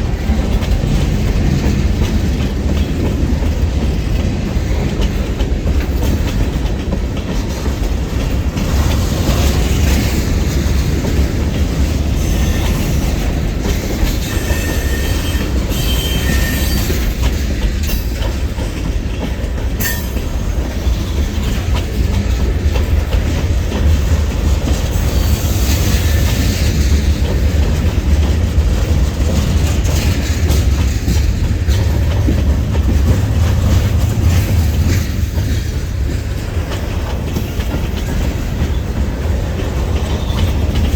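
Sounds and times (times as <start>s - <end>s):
freight train rumbling past: 0.0s - 40.9s
wheels clicking over rail joints: 0.0s - 40.9s
high wheel squeal: 14.2s - 17.1s.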